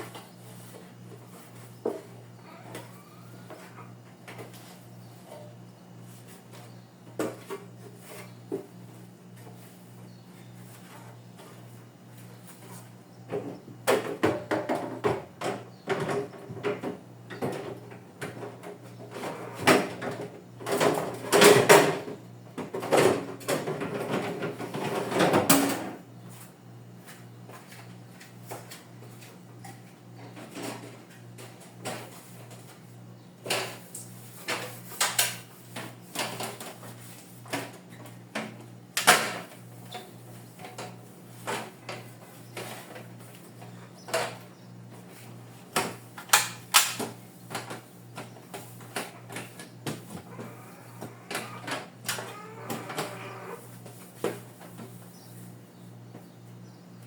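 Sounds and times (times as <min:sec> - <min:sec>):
refrigerator drawers clattering: 0:48.7 - 0:53.6.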